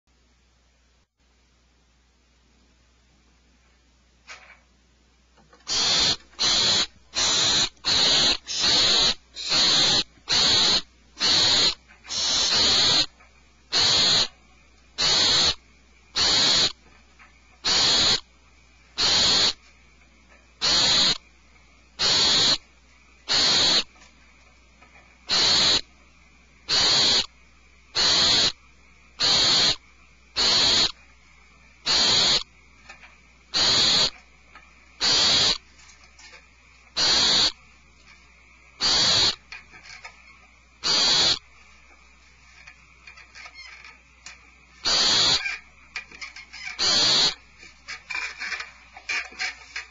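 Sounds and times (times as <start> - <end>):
barn owls screeching: 5.6 - 14.4, 15.0 - 15.6, 16.2 - 16.8, 17.6 - 18.3, 19.0 - 19.6, 20.6 - 21.2, 22.0 - 22.7, 23.3 - 24.0, 25.3 - 25.9, 26.7 - 27.3, 28.0 - 28.6, 29.2 - 29.8, 30.4 - 31.0, 31.8 - 32.5, 33.5 - 34.2, 35.0 - 35.6, 37.0 - 37.6, 38.8 - 40.2, 40.8 - 41.5, 43.1 - 44.0, 44.8 - 49.9.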